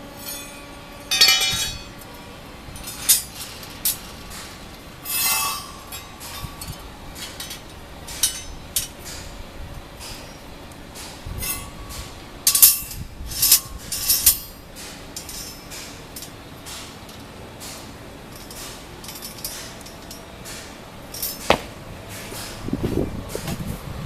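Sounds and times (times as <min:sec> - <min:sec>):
metal parts clinking and clanking: 0:00.2 - 0:09.4, 0:10.0 - 0:22.6.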